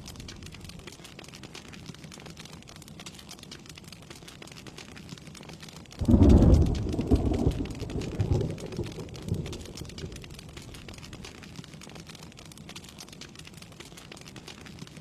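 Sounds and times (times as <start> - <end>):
steady rain falling: 0.0 - 15.0
thunder rumbling: 6.0 - 11.4.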